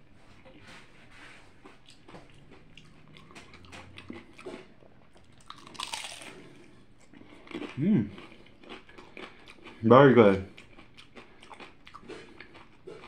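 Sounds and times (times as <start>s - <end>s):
chewing crispy taco: 0.5s - 13.0s
loud bite crunch: 5.4s - 9.8s.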